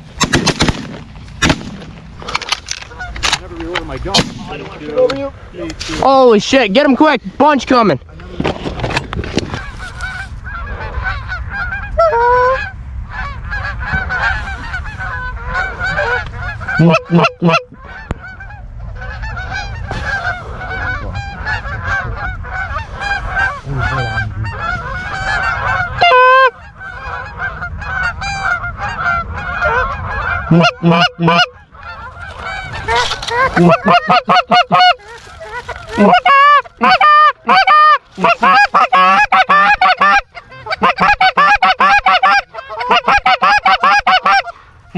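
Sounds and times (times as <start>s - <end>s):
flock of geese honking: 2.2s - 5.2s, 9.3s - 44.9s
loud close goose honks: 9.5s - 44.9s.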